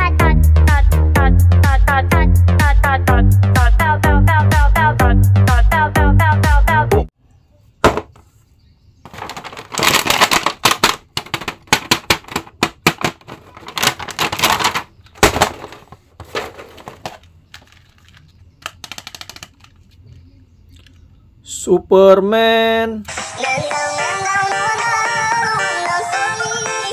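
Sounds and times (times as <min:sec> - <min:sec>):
plastic packaging crackling: 0:09.1 - 0:20.0.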